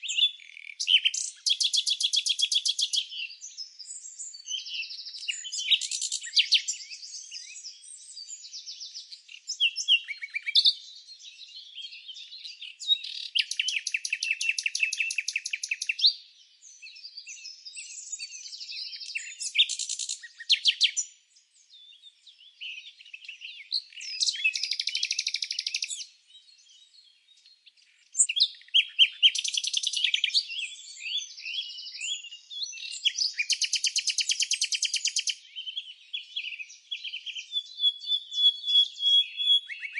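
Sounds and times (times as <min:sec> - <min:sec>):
songbirds chirping and singing: 0:00.0 - 0:39.9
bird trills: 0:12.9 - 0:16.1, 0:23.8 - 0:26.0.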